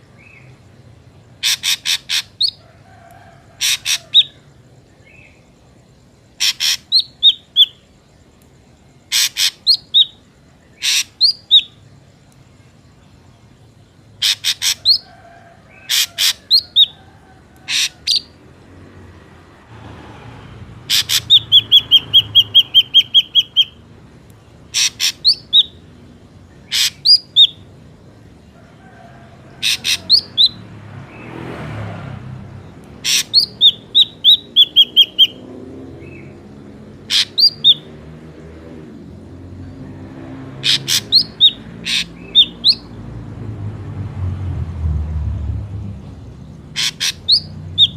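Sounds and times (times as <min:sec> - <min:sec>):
bird calling sharp notes: 0:01.4 - 0:02.6, 0:03.6 - 0:04.4, 0:06.4 - 0:07.8, 0:09.1 - 0:10.2, 0:10.8 - 0:11.8, 0:14.2 - 0:15.1, 0:15.9 - 0:17.0, 0:17.6 - 0:18.4, 0:20.8 - 0:23.8, 0:24.6 - 0:25.8, 0:26.6 - 0:27.6, 0:29.6 - 0:30.6, 0:33.0 - 0:35.5, 0:37.0 - 0:37.9, 0:40.6 - 0:43.0, 0:46.6 - 0:47.9.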